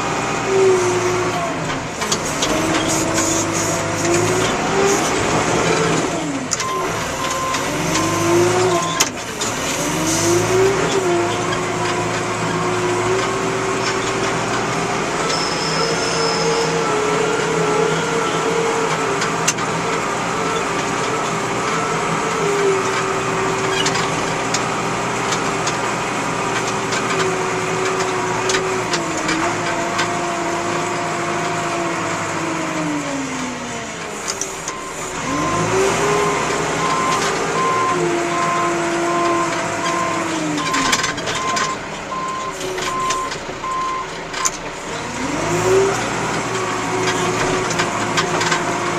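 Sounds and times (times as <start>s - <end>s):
diesel engine revving: 0.0s - 48.9s
reversing alarm beeping: 6.6s - 9.1s, 15.2s - 16.9s, 34.7s - 38.6s, 40.0s - 44.5s.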